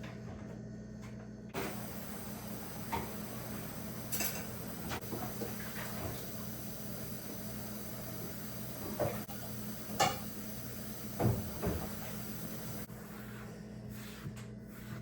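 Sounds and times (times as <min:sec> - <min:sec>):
steady low hum: 0:00.5 - 0:15.0
dishes and cupboard doors clattering: 0:01.6 - 0:06.5, 0:11.1 - 0:12.4.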